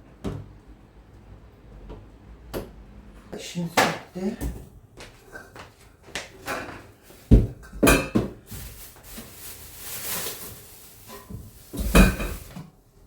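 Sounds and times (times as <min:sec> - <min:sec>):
sharp knocks of household items: 0:07.3 - 0:08.6, 0:11.3 - 0:12.6
hissing rustle: 0:08.5 - 0:12.6.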